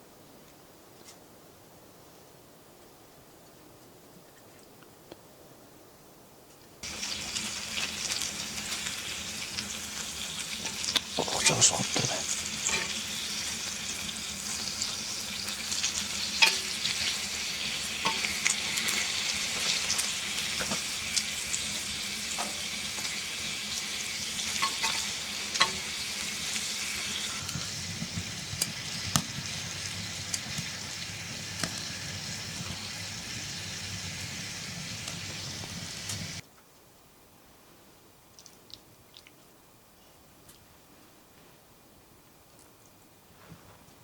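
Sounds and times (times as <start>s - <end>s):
food sizzling in a pan: 6.8s - 36.4s
utensil scraping a pan: 12.6s - 13.5s.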